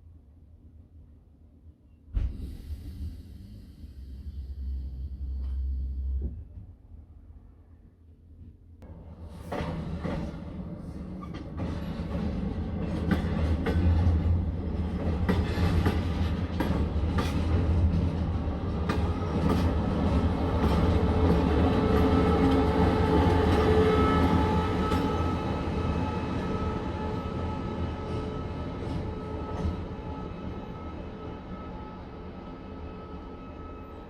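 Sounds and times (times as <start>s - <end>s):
rail joint clicks: 4.6s - 6.6s, 8.8s - 25.4s
train wheels rumbling on rails: 8.8s - 34.0s.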